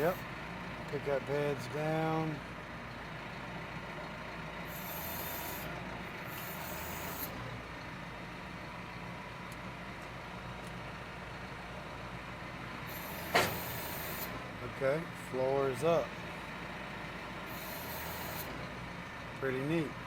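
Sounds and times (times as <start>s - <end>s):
tractor engine running: 0.0s - 20.0s
hydraulic hiss: 4.7s - 7.4s, 12.9s - 14.4s, 17.4s - 18.7s.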